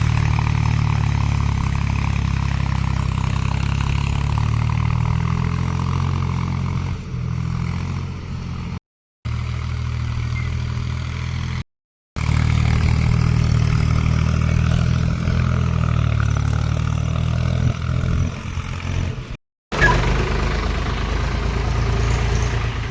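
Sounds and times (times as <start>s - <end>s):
tractor diesel engine running: 0.0s - 8.7s, 12.2s - 22.9s.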